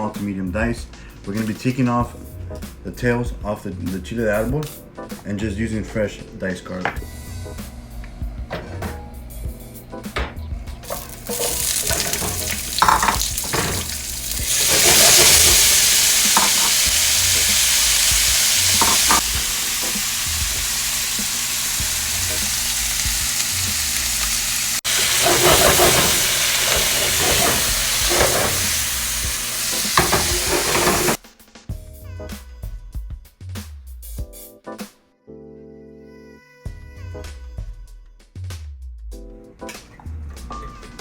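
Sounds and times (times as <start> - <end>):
utensil stirring and scraping pan: 10.8 - 19.4, 24.1 - 31.2
food sizzling in hot oil: 10.8 - 31.2.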